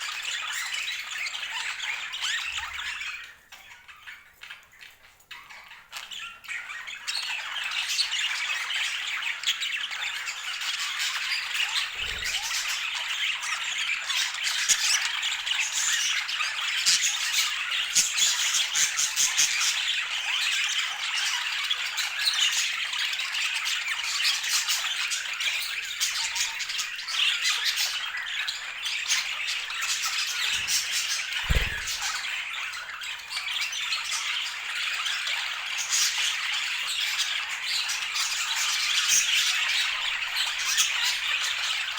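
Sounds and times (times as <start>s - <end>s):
budgerigars chattering: 11.8s - 12.9s, 29.9s - 32.4s.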